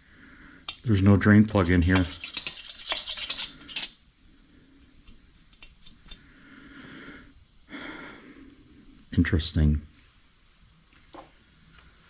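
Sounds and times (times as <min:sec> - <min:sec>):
metal parts clinking: 0:01.8 - 0:04.0.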